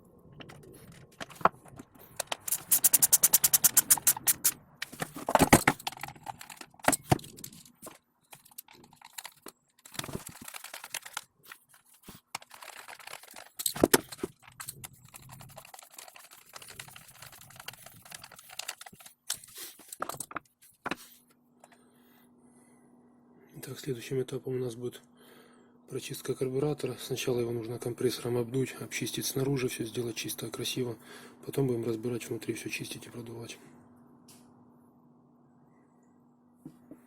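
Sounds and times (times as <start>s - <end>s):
clicks and knocks of tools: 0.4s - 15.0s.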